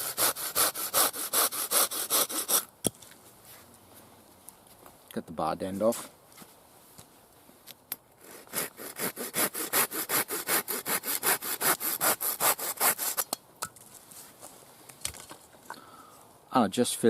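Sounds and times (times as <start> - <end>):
hand saw cutting wood: 0.0 - 2.7, 8.2 - 13.4.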